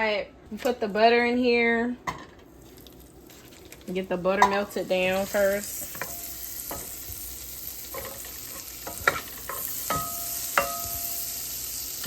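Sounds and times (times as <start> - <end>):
butter sizzling in a pot: 2.5 - 12.0
utensil stirring and knocking pot: 4.3 - 7.2, 7.9 - 11.2.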